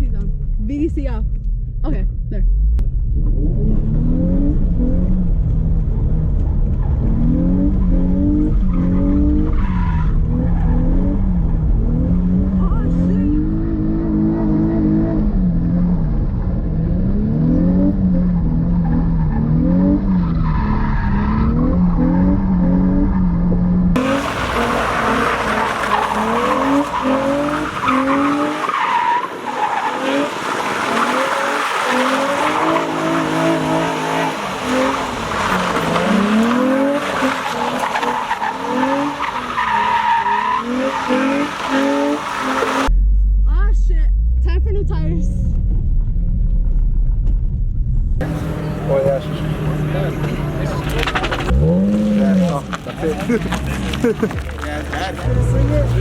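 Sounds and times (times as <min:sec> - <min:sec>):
car engine revving: 0:00.0 - 0:56.0
tyres squealing: 0:24.0 - 0:42.9.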